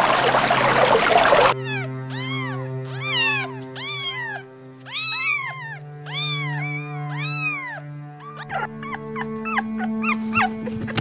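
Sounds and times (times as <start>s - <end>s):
kitten mewing: 1.5s - 9.0s
background music: 1.5s - 11.0s.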